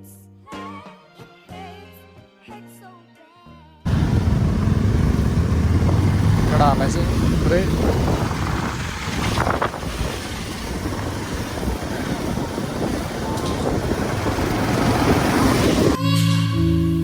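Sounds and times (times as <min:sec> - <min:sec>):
music: 0:00.0 - 0:03.9, 0:16.0 - 0:17.0
motorcycle engine running: 0:03.9 - 0:16.0
wind rushing over microphone: 0:03.9 - 0:16.0.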